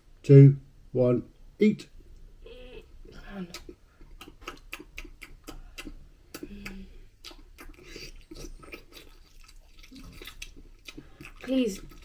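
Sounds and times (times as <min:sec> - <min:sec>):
wet open-mouthed chewing: 0:03.5 - 0:12.0
person humming: 0:06.3 - 0:07.0.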